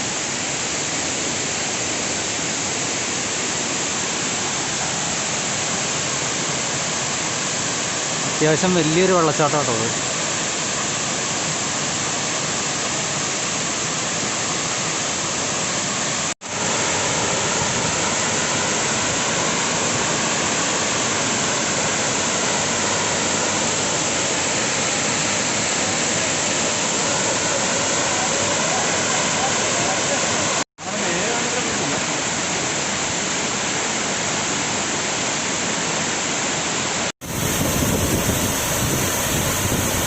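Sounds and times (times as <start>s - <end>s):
waterfall rushing: 0.0s - 35.7s, 36.8s - 40.0s.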